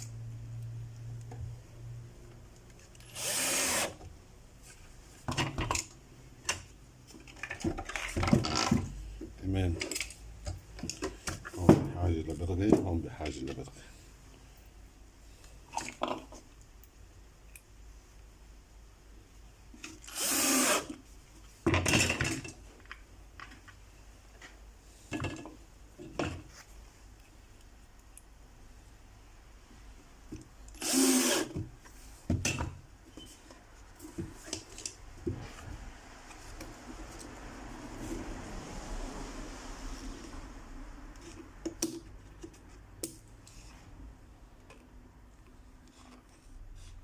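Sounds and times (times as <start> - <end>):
power drill driving screws: 3.0 - 4.0, 20.1 - 21.0, 30.8 - 31.6.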